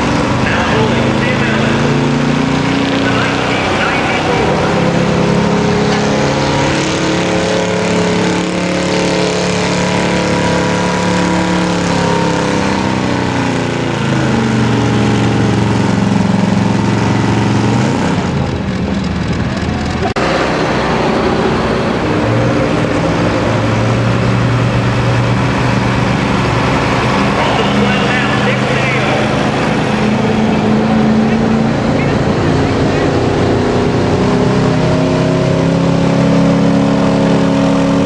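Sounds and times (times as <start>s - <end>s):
truck engine running at high revs: 0.0s - 38.0s.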